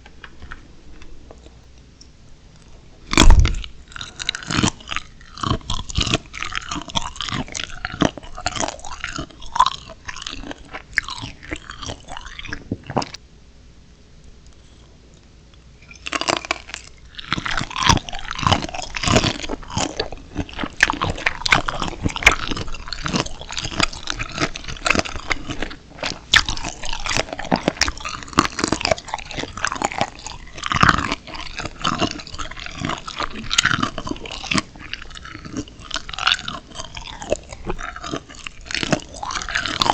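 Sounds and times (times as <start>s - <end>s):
crunchy chewing of shrimp: 2.6s - 13.2s, 15.8s - 39.9s.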